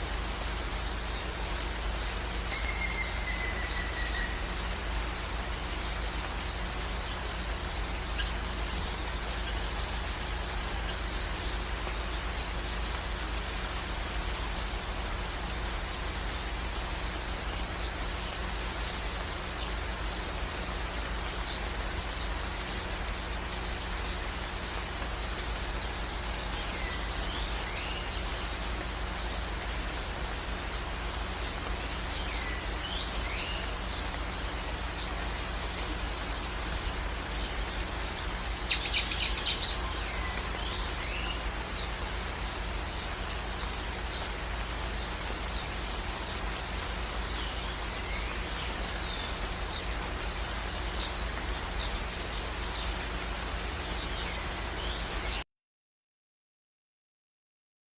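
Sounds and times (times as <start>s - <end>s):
short sweeping bird calls: 0.0s - 12.9s
hiss of running water: 0.0s - 55.4s.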